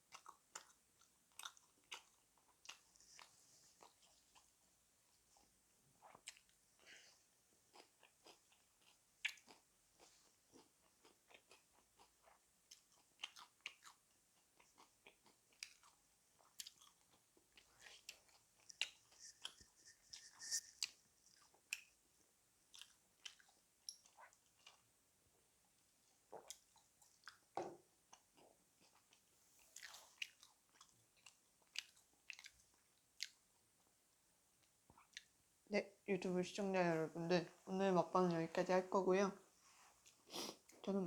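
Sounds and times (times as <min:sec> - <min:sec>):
person chewing crunchy food: 0:00.0 - 0:04.6, 0:05.4 - 0:24.9, 0:26.0 - 0:33.6.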